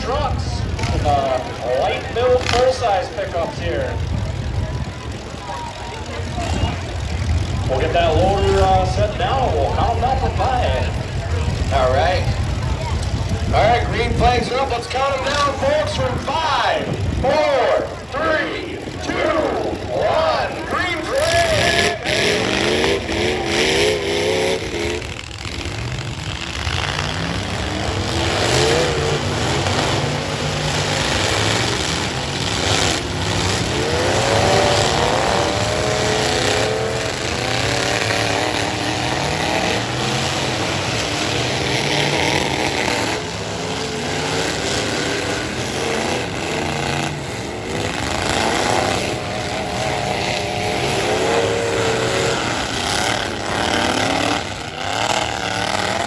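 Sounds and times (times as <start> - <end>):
truck engines revving hard: 0.0 - 56.0.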